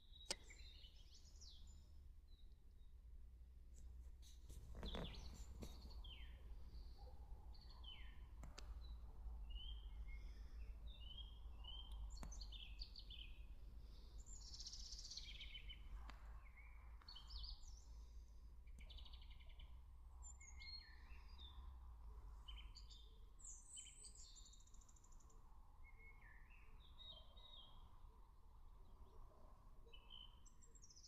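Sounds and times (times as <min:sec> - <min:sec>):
songbirds chirping and singing: 0:00.0 - 0:02.5, 0:04.7 - 0:21.8, 0:29.9 - 0:31.0.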